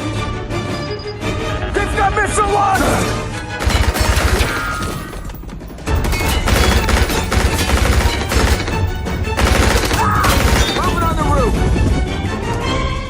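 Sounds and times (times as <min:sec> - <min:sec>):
film score music: 0:00.0 - 0:13.0
automatic gunfire: 0:03.6 - 0:04.9, 0:06.1 - 0:11.1.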